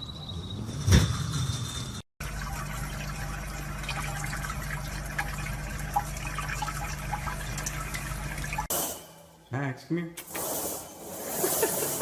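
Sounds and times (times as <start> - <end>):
running water: 2.2 - 8.7.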